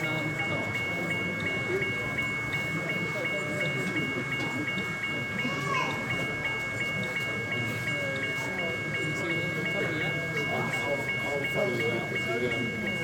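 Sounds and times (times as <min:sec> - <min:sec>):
murmur of crowd chatter: 0:00.0 - 0:13.0.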